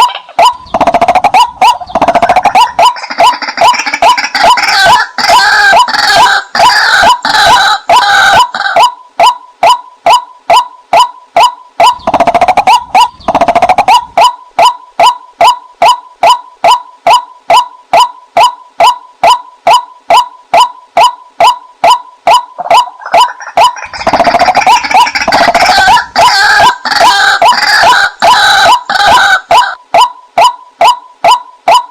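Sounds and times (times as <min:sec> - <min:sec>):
rough chattering bird call: 0:00.0 - 0:04.6, 0:11.9 - 0:14.2.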